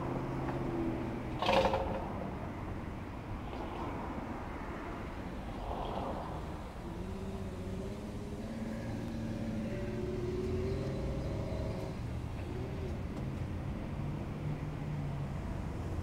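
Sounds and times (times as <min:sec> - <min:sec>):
vehicle engine running: 0:07.0 - 0:14.3.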